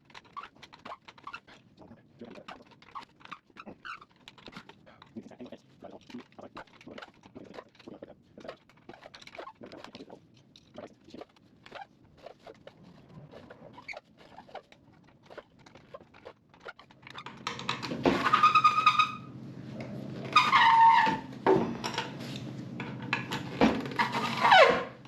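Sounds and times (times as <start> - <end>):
loud high squeal: 18.2 - 19.3, 20.3 - 21.3.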